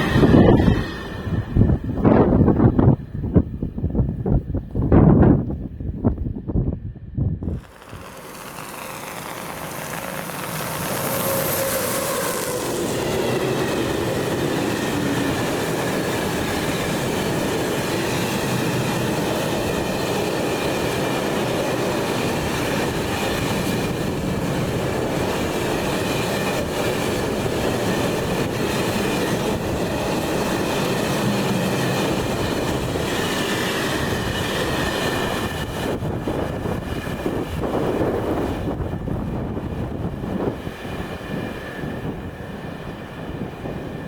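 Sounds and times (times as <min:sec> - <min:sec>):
train wheels rushing on rails: 0:00.0 - 0:44.0
high wheel squeal: 0:07.5 - 0:16.7
clatter of rail joints: 0:07.5 - 0:24.7.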